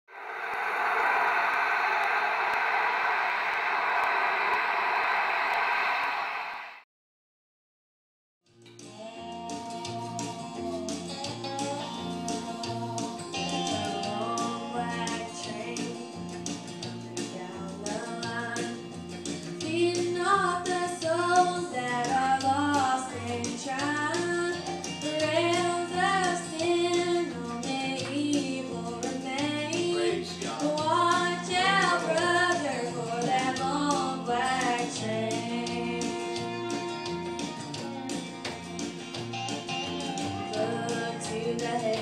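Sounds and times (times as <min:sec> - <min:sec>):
guitar: 0:08.5 - 0:42.0
woman singing: 0:08.9 - 0:16.4, 0:17.3 - 0:18.8, 0:19.6 - 0:36.5, 0:40.5 - 0:42.0.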